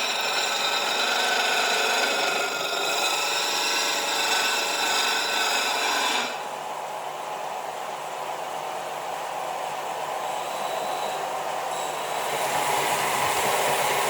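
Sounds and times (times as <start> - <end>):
power grinder grinding steel: 0.0 - 6.4.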